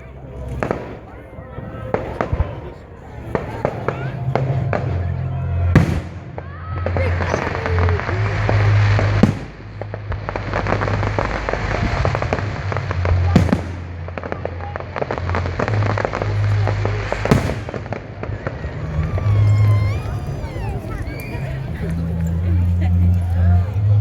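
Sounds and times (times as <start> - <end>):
fireworks crackling: 0.0 - 24.0
loud firework bangs: 0.5 - 23.0.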